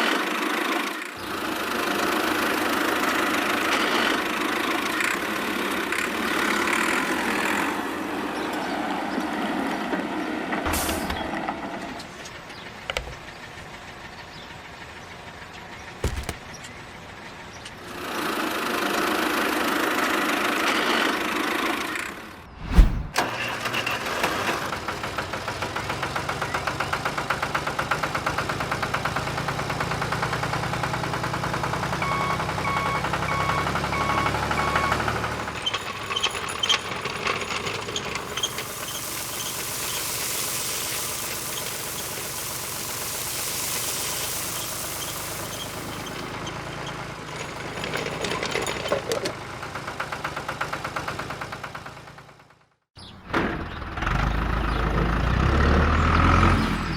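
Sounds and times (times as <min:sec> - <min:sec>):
low hum: 0:22.5 - 0:23.2
high hiss: 0:38.2 - 0:46.3.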